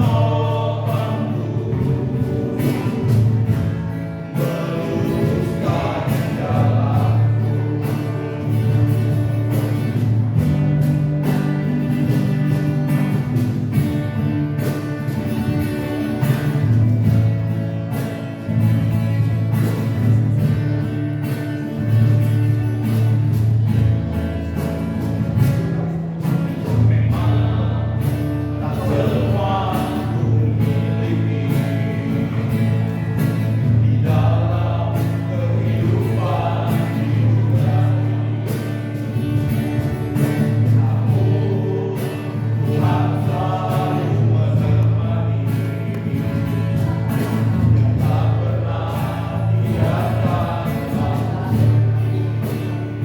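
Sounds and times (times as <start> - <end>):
choir singing gospel music: 0.0 - 14.2, 25.8 - 53.0
sustained bass: 0.0 - 53.0.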